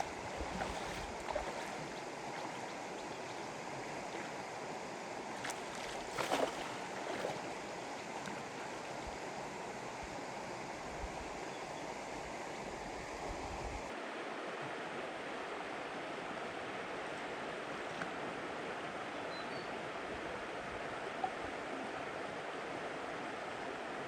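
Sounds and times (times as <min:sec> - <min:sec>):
water splash: 0:00.0 - 0:02.8, 0:05.3 - 0:09.1
flowing water: 0:00.0 - 0:24.0.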